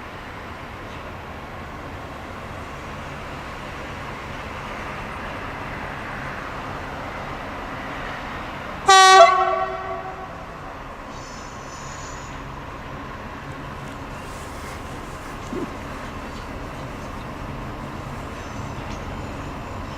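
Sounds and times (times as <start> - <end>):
diesel locomotive rumble: 0.0 - 19.9
locomotive horn blast: 8.8 - 10.6.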